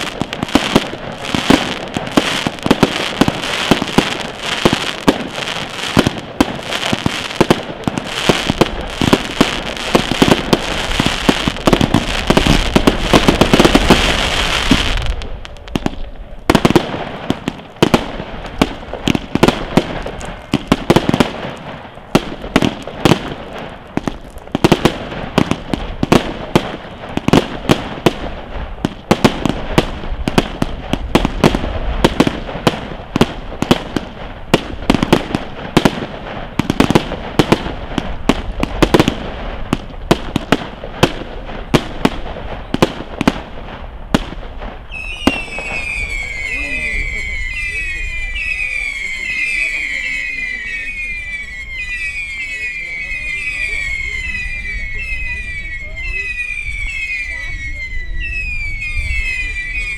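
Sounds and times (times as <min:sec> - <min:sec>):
fireworks bangs: 0:00.0 - 0:59.9.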